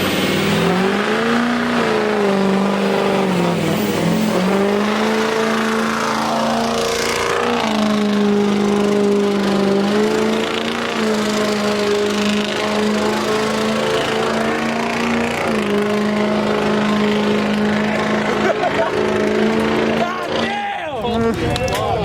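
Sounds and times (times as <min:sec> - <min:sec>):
engine revving hard: 0:00.0 - 0:21.4.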